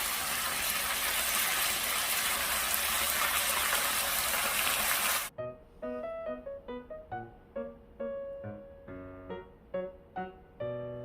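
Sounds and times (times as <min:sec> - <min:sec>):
water running from a tap: 0:00.0 - 0:05.3
piano music: 0:05.3 - 0:11.0.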